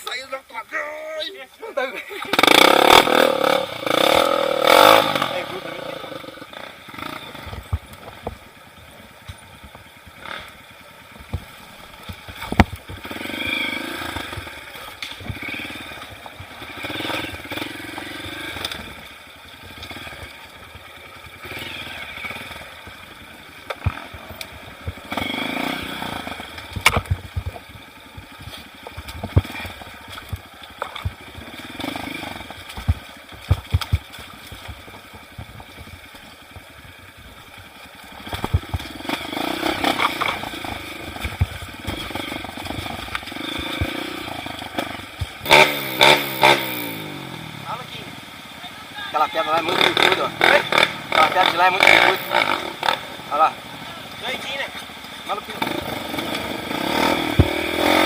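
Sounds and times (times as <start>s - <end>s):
motorcycle engine revving: 2.1s - 58.0s
sharp knocks and clattering: 32.3s - 36.6s.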